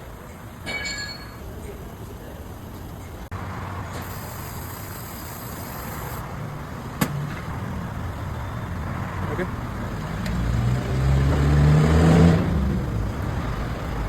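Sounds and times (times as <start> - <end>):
car road and tyre rumble: 2.0 - 14.0
high hiss: 4.0 - 6.2.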